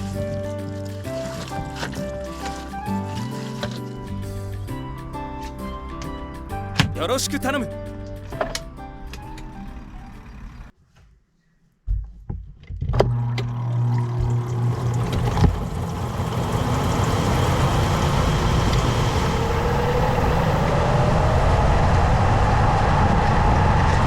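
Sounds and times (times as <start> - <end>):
washing machine motor humming: 13.1 - 21.0
whine of tub spinning up: 13.3 - 23.9.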